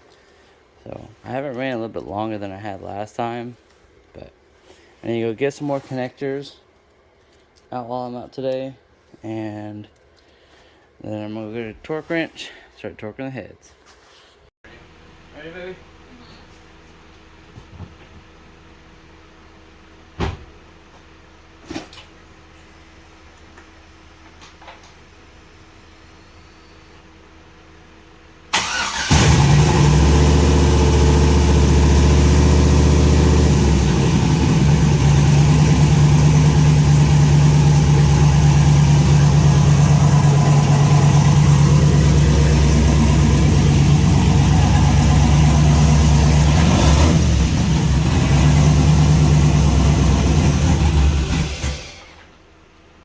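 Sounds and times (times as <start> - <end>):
car engine starting and running: 28.5 - 52.2.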